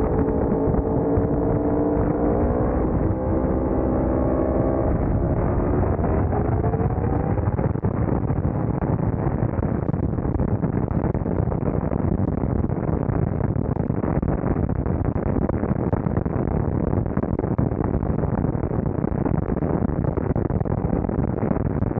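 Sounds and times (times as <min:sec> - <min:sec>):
loud rushing noise: 0:00.0 - 0:07.9
motorcycle engine running: 0:00.0 - 0:10.1.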